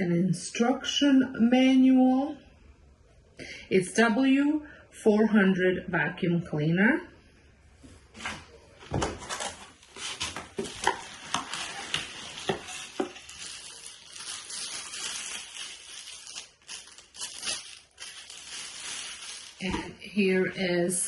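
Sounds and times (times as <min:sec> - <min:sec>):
plastic wrap crinkling: 0:09.0 - 0:20.2.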